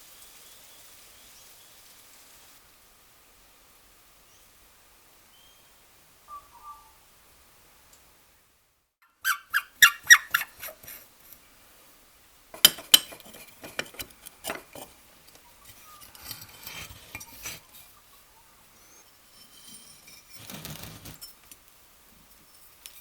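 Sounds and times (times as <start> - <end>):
metal plane parts clinking: 12.6 - 17.8, 19.4 - 21.6
rustling: 13.1 - 18.0, 18.9 - 23.0.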